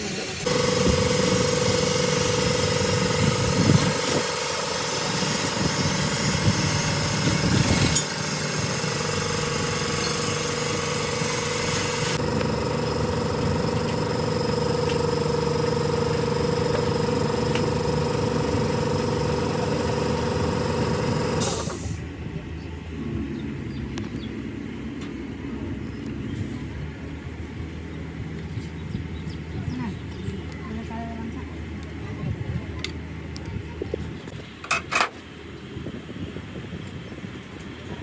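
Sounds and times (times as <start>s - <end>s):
power tool hammering rattle: 0.0s - 22.0s.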